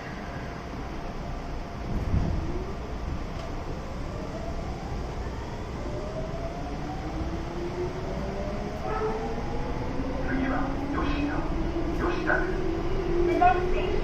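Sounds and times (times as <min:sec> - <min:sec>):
train inverter whining: 0:00.0 - 0:14.0
wheels rumbling on rail: 0:00.0 - 0:14.0.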